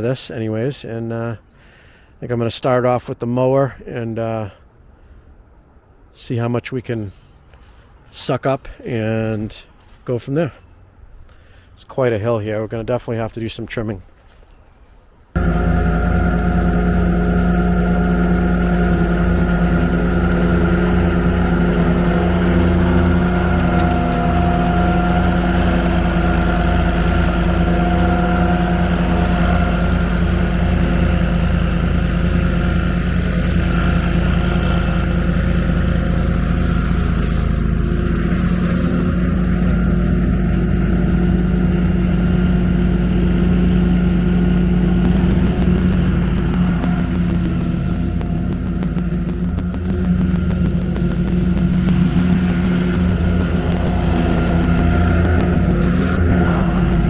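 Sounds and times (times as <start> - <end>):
riding mower engine running: 15.3 - 57.0.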